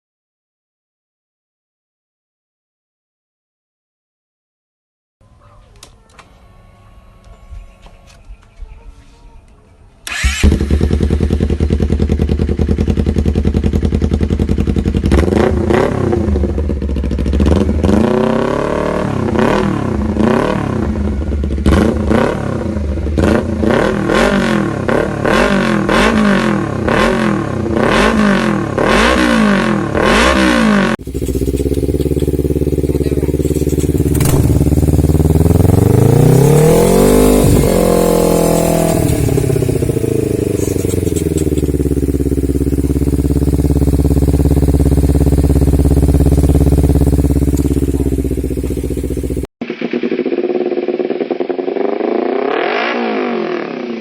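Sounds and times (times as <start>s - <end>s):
motorcycle idling and revving: 10.0s - 54.0s.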